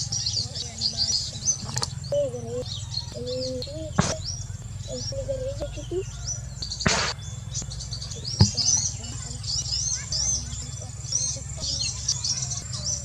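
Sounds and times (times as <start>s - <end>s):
lower wavering bird call: 0.0s - 13.0s
small birds chirping: 0.0s - 13.0s
sharp click: 4.0s - 4.3s, 6.6s - 7.2s
rustling: 6.8s - 7.2s.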